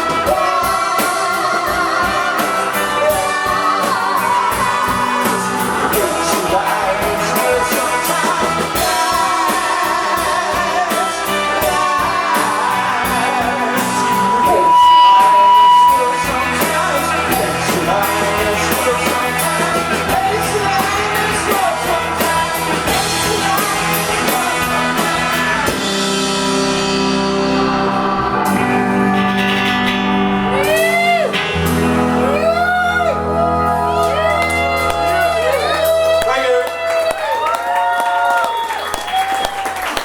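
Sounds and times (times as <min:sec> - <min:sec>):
rock band playing live: 0:00.0 - 0:40.0
guitar swooping pitch bends: 0:13.8 - 0:16.6.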